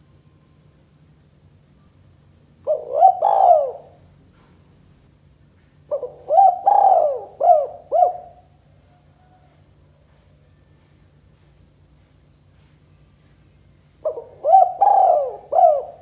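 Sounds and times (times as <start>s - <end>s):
dove cooing: 2.6s - 4.0s, 5.9s - 8.4s, 14.0s - 16.0s.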